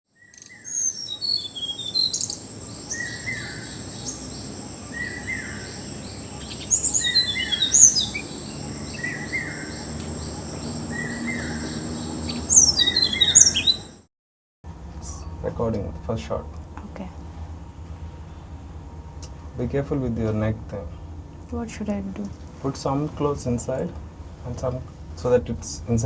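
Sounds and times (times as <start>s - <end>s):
birds chirping and trilling: 0.1s - 14.0s
high insect drone: 0.3s - 14.0s
bird repeating short call: 0.4s - 14.0s.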